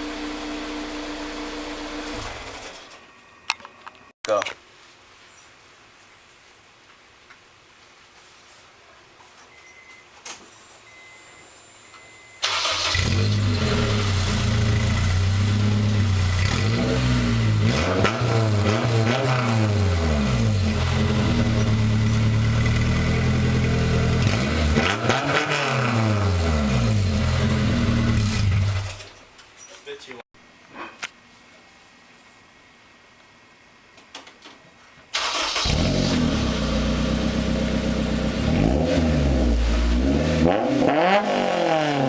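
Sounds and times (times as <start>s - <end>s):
car engine idling and revving: 0.0s - 2.4s, 12.8s - 29.1s, 35.6s - 42.0s.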